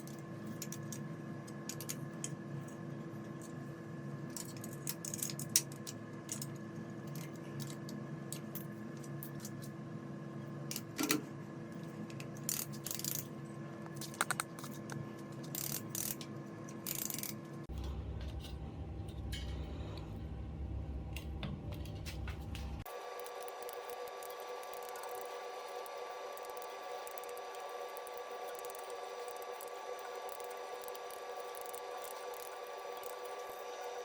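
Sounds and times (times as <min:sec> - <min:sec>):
steady electrical hum: 0:00.0 - 0:34.0
low hum: 0:17.6 - 0:22.9.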